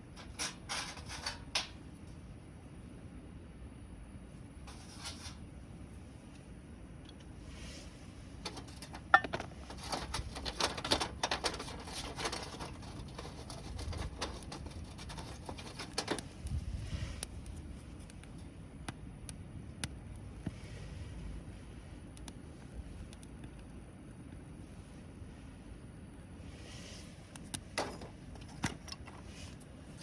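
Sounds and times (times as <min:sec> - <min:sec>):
wood campfire crackling: 0:08.3 - 0:30.0.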